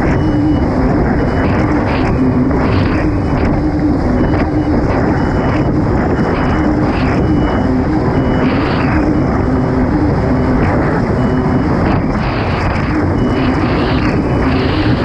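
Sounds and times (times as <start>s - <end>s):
jet ski engine running hard: 0.0s - 15.0s
wind on microphone: 0.0s - 15.0s.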